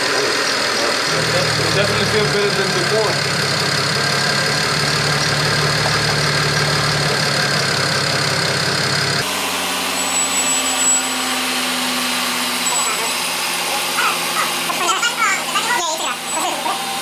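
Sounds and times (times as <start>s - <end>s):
car engine idling: 0.0s - 9.3s.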